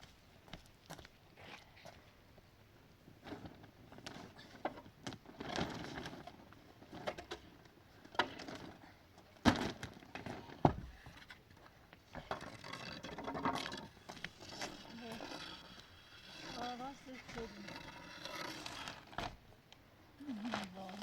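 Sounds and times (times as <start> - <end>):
handling rustles and scrapes: 9.8 - 19.5, 20.2 - 21.0.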